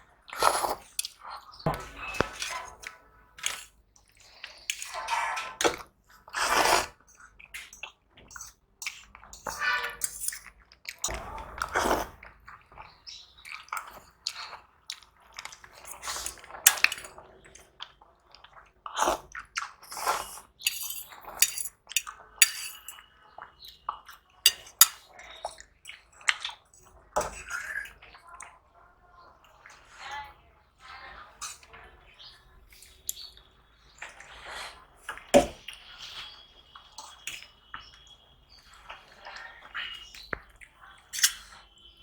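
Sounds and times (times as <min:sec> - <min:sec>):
cutlery clinking on a plate: 0:01.7 - 0:03.7, 0:09.5 - 0:11.7, 0:20.6 - 0:23.1, 0:24.5 - 0:25.1, 0:41.1 - 0:41.6
chewing: 0:10.4 - 0:20.5.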